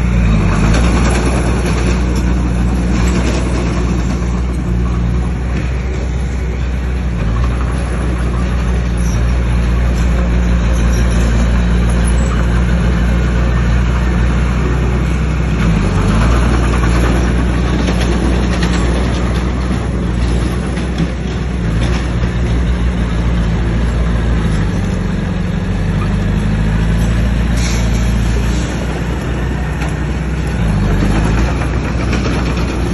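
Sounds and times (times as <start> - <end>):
bulldozer diesel engine running: 0.0 - 32.9.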